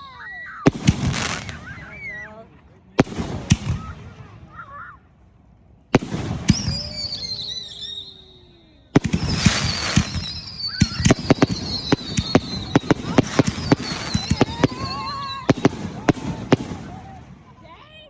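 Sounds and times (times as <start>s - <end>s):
firework crackling and pops: 0.6s - 2.1s, 3.0s - 4.6s, 5.9s - 8.2s, 9.0s - 17.6s
firework bang: 0.6s - 2.2s, 6.0s - 7.7s, 9.0s - 17.5s
firework whistle falling in pitch: 6.5s - 12.8s.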